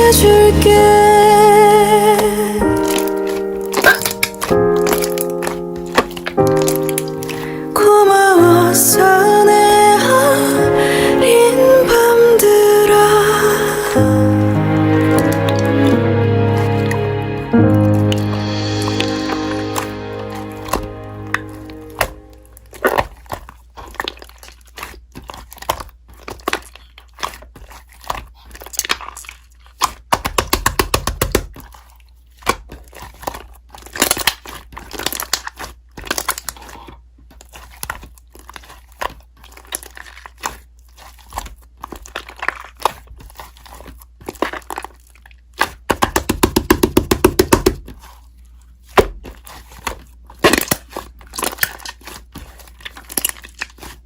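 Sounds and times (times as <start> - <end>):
slime squished by hand: 2.1 - 7.8, 22.0 - 54.0.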